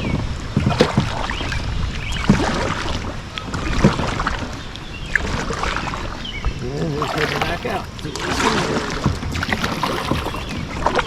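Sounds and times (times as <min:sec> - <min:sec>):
paddle strokes splashing in water: 0:06.9 - 0:10.6.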